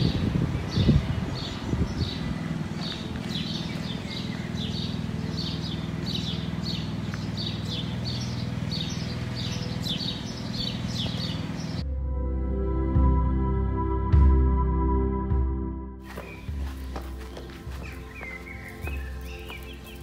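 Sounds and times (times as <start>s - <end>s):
small bird chirping: 0.0s - 11.8s, 16.2s - 20.0s.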